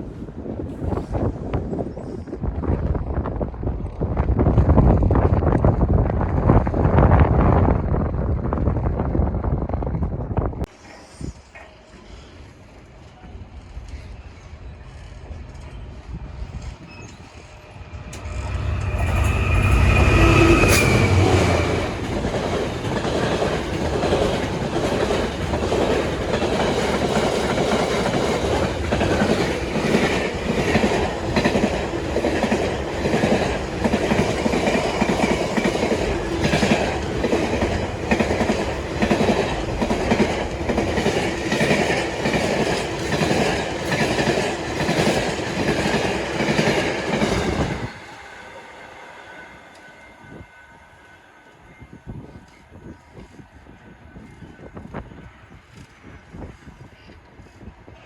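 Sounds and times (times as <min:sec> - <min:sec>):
rhythmic wheel clatter on rails: 0:10.8 - 0:49.9
locomotive passing loudly: 0:16.8 - 0:51.3.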